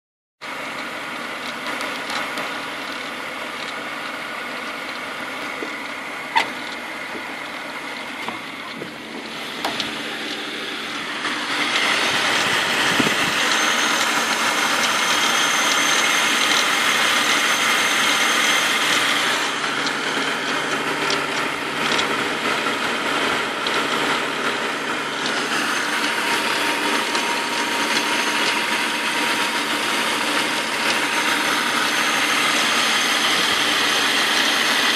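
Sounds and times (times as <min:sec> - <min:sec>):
car engine running: 0:00.4 - 0:34.9.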